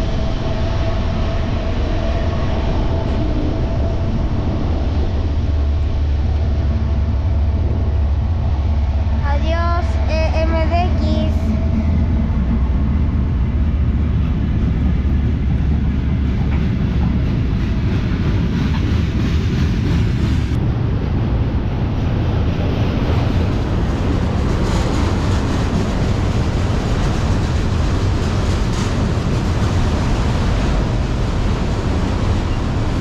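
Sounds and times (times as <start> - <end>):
freight train deep rumble: 0.0 - 33.0
wheels rattling on rails: 10.8 - 33.0.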